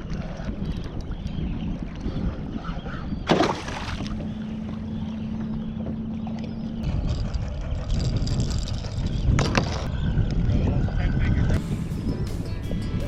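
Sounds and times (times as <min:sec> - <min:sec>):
water against a hull: 0:00.0 - 0:09.9
wind rumbling on microphone: 0:00.0 - 0:13.0.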